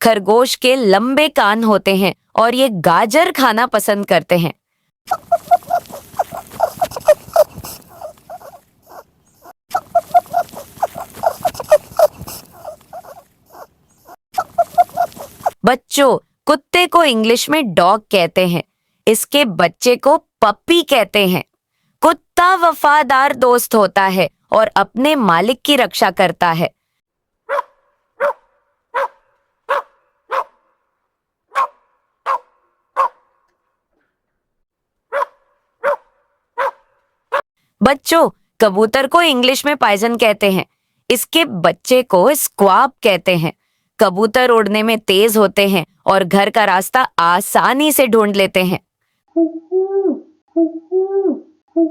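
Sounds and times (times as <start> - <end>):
dog barking: 5.1 - 15.6, 27.5 - 30.9, 31.5 - 33.5, 35.1 - 37.4
rabbit squeaks: 5.1 - 15.6.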